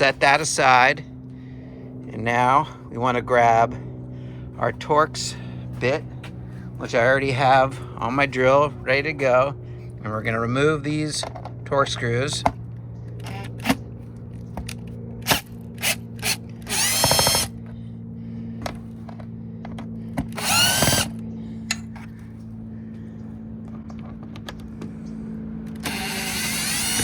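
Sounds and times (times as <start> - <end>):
cordless drill motor whining: 14.5 - 17.9, 18.6 - 22.2, 25.6 - 27.0.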